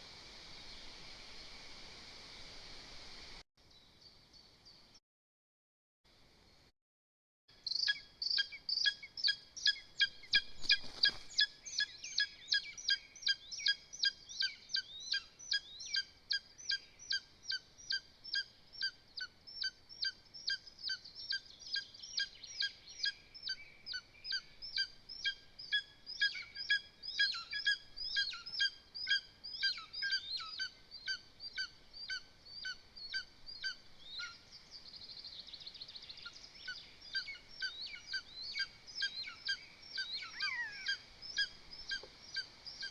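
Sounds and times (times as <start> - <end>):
brief rustle: 10.5 - 11.4
eagle yelping calls: 24.3 - 34.4, 36.6 - 42.9.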